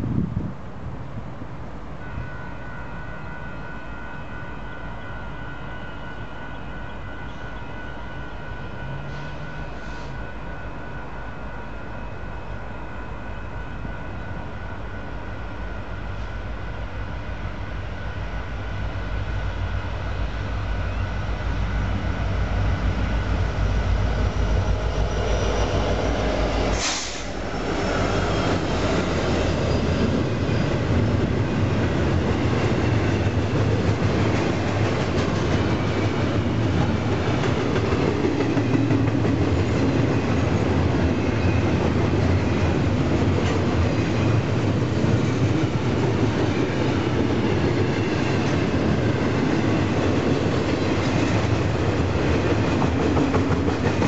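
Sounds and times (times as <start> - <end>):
diesel locomotive engine rumble: 0.0 - 54.0
steel wheels rumbling on rails: 13.0 - 54.0.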